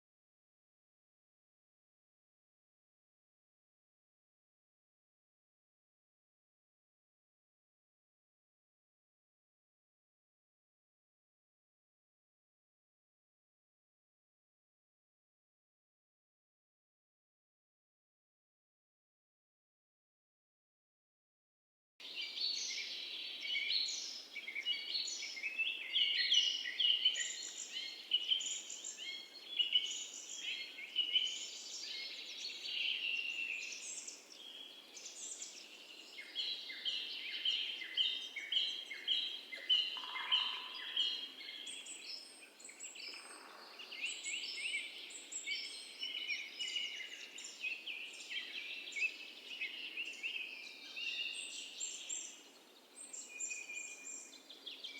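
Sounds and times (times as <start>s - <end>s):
small birds chirping: 22.0s - 54.9s.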